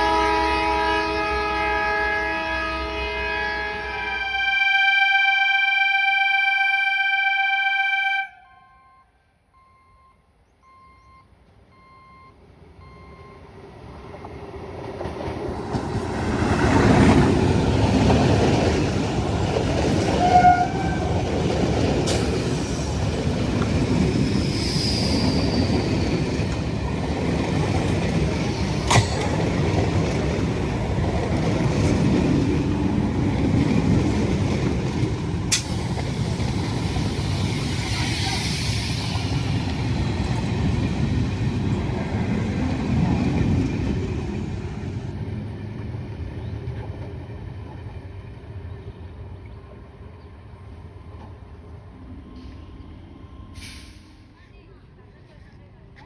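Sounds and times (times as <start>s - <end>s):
train rumbling past: 0.0s - 5.0s, 12.4s - 56.0s
train horn: 0.0s - 9.2s, 20.1s - 21.2s
wheels clacking on rails: 13.6s - 49.4s.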